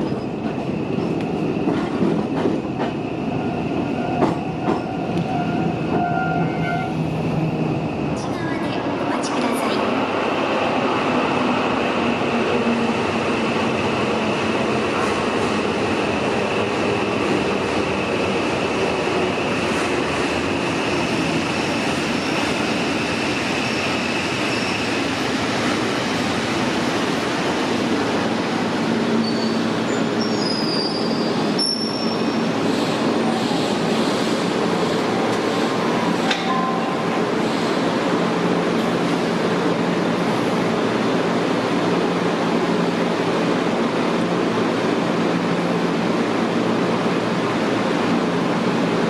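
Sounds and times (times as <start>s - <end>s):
train wheels and motors rumbling: 0.0s - 49.0s
wheel squeal: 29.2s - 32.4s.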